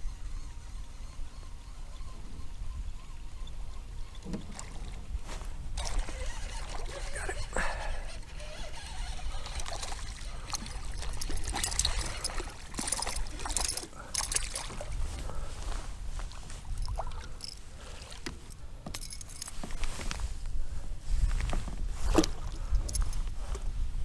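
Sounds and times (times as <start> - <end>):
water trickling: 5.8 - 14.9
fishing gear knocking: 10.5 - 14.8, 16.7 - 17.6, 18.2 - 19.8.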